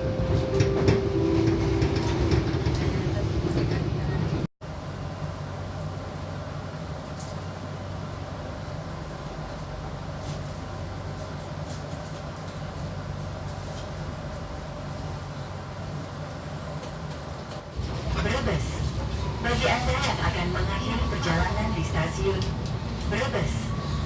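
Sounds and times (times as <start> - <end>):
train carriage low hum: 0.0 - 24.0.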